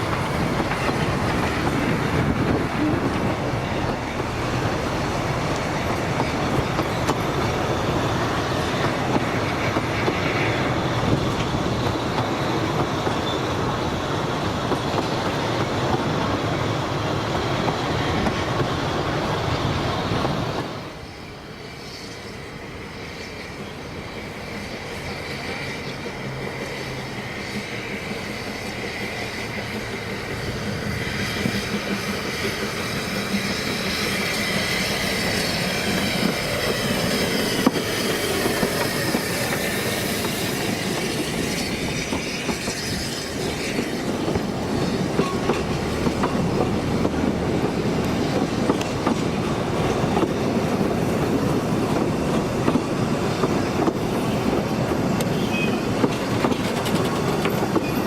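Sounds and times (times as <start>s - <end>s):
steam train passing: 0.0s - 58.0s
wheels clicking over rail joints: 31.3s - 58.0s.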